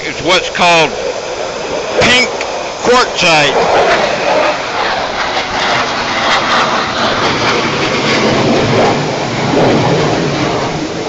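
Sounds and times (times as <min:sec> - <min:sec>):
waterfall rushing over rocks: 0:00.0 - 0:04.8.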